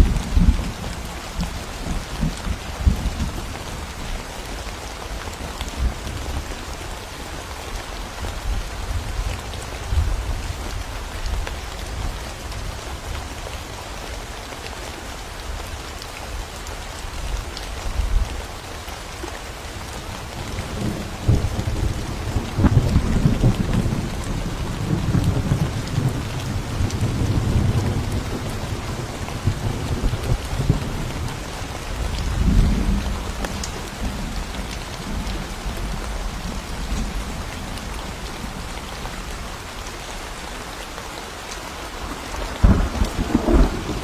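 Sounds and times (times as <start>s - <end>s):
low thunder rumbling: 0.0s - 4.0s, 20.4s - 39.5s, 42.1s - 44.0s
steady rain hiss: 0.0s - 44.0s.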